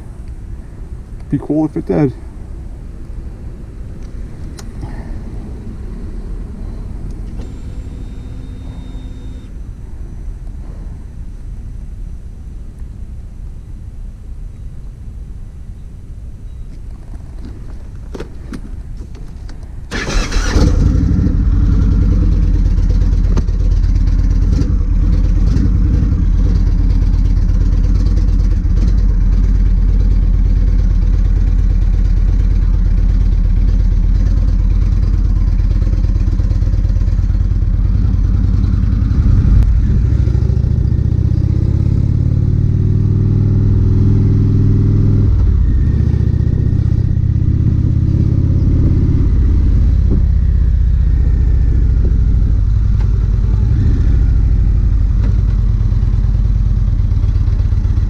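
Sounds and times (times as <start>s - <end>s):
gear change: 16.7s - 42.3s
motorcycle engine: 19.9s - 58.0s.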